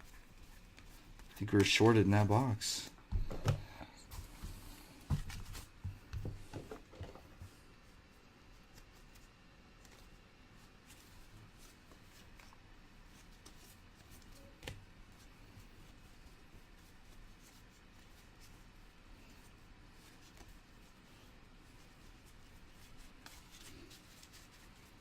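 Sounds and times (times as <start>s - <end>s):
trading cards rustling: 0.0s - 2.7s.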